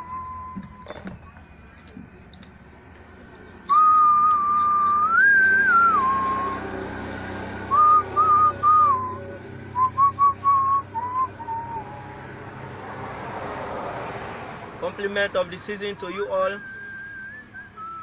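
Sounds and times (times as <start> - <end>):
person whistling a tune: 0.0 - 0.9, 3.7 - 6.7, 7.7 - 12.2, 16.4 - 18.0.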